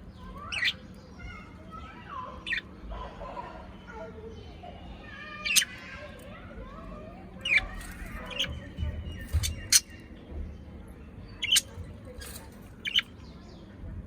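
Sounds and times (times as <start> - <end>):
parrot squawking and chirping: 0.3 - 0.8, 2.4 - 2.7, 5.4 - 6.2, 7.4 - 10.0, 11.4 - 13.1.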